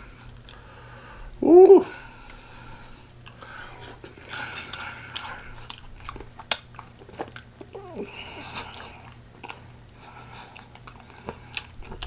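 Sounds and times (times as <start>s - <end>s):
person chewing with wet smacking: 3.2s - 12.0s.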